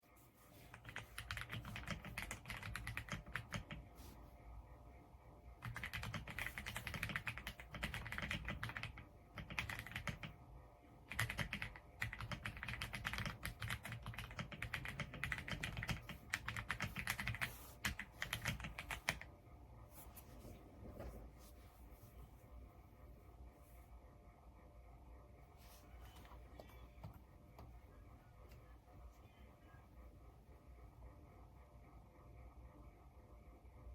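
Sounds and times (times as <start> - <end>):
mechanical keyboard typing: 0.7 - 3.9, 5.6 - 10.4, 11.0 - 19.3.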